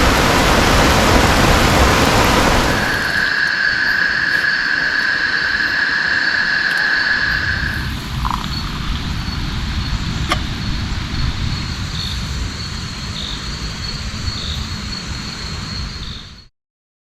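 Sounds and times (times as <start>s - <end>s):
low rumble: 0.0s - 3.3s
rain hissing: 0.0s - 15.8s
high insect trill: 0.0s - 16.5s.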